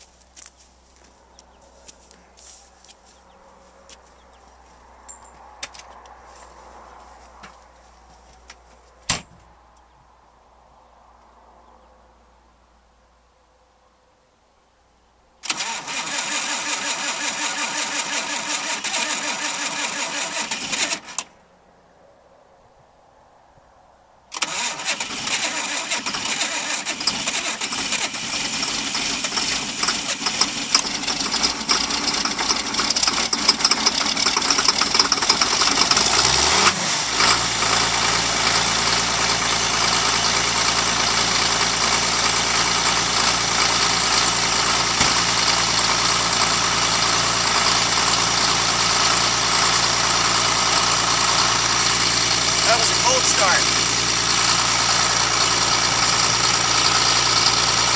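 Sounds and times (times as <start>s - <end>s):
diesel engine idling: 0.0s - 8.4s, 24.3s - 57.9s
starter motor cranking: 15.4s - 21.3s, 24.3s - 57.9s.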